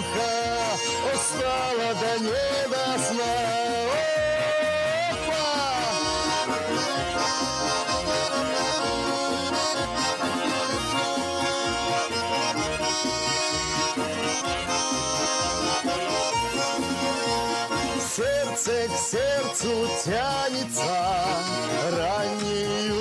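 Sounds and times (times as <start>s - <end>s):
person singing: 0.0s - 12.2s, 17.9s - 23.0s
button accordion playing: 0.0s - 23.0s.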